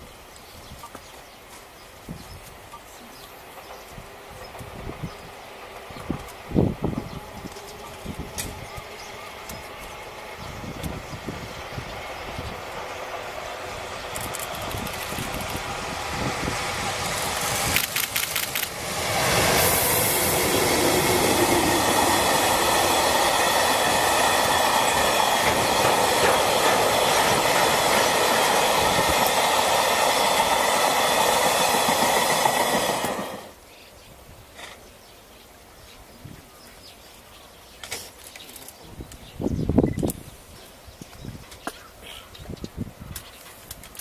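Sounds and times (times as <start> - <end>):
train wheel noise and clatter: 0.0 - 33.6, 42.5 - 44.0
train wheel clicks over rail joints: 14.1 - 15.7, 17.1 - 18.8, 24.4 - 29.4, 43.1 - 44.0.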